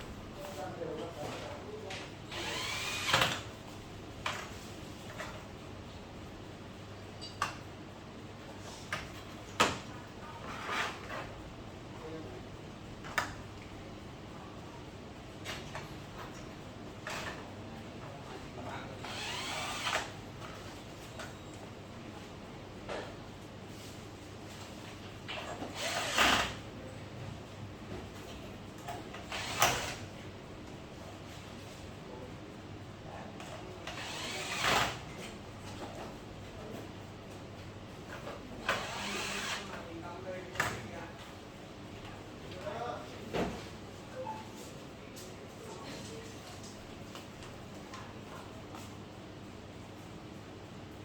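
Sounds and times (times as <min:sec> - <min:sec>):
mechanical tool noise: 0:02.3 - 0:03.4, 0:19.0 - 0:20.1, 0:25.6 - 0:26.6, 0:29.2 - 0:30.0, 0:33.9 - 0:35.0, 0:38.6 - 0:39.7.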